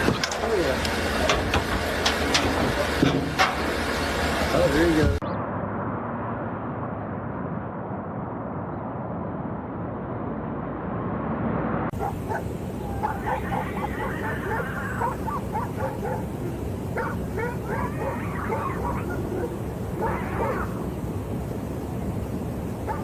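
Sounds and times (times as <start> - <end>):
muffled rushing noise: 4.6 - 23.0
dog yipping and whimpering: 12.0 - 16.3, 17.0 - 20.8.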